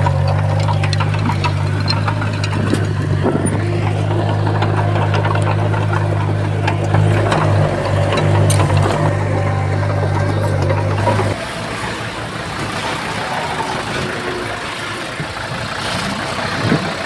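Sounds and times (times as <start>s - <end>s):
sharp clicks and knocks: 0.0s - 11.4s
diesel machine droning: 0.0s - 17.0s.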